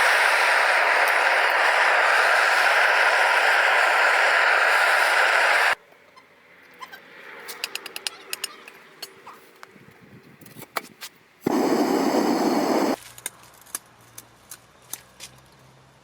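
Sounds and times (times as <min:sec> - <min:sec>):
gas burner rushing hiss: 0:00.0 - 0:05.8, 0:11.4 - 0:13.0.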